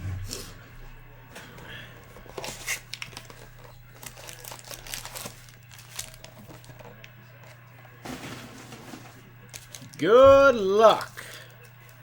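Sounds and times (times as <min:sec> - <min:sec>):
low electrical hum: 0:00.0 - 0:12.0
card pack wrappers crinkling: 0:02.3 - 0:07.1, 0:09.4 - 0:10.1, 0:10.8 - 0:12.0.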